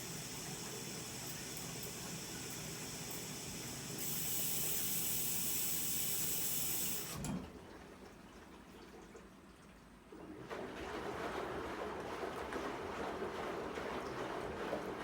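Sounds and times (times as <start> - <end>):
washing machine hum: 0.0 - 15.0
water running into washing machine: 0.0 - 15.0.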